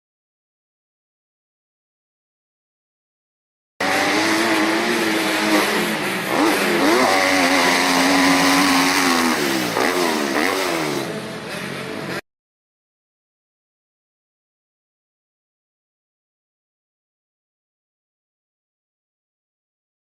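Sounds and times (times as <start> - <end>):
motocross bike engine revving: 3.8 - 12.2.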